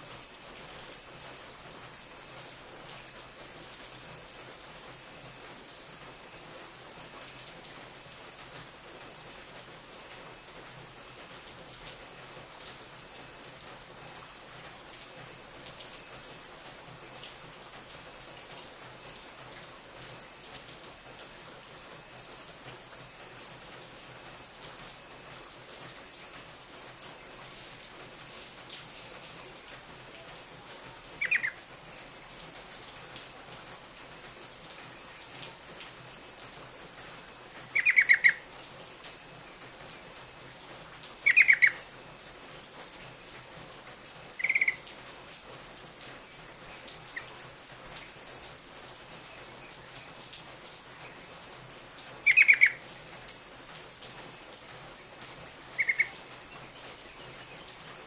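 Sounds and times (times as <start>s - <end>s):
background hiss: 0.0s - 58.0s
bulbul calling: 31.2s - 31.6s, 37.7s - 38.4s, 41.2s - 41.8s, 44.4s - 44.8s, 52.2s - 52.8s, 55.7s - 56.2s.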